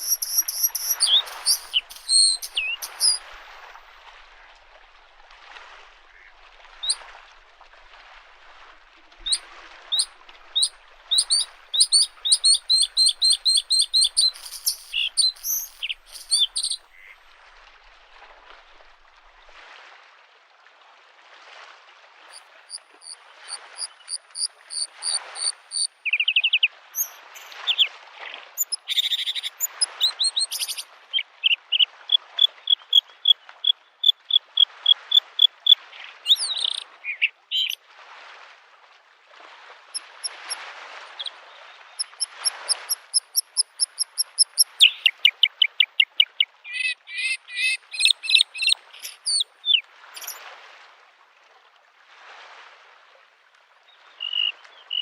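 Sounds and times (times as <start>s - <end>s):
bird singing: 0.0s - 3.2s, 9.2s - 17.2s, 23.0s - 27.9s, 28.6s - 30.8s, 31.4s - 37.8s, 41.2s - 50.4s
lake waves lapping shore: 0.0s - 55.0s.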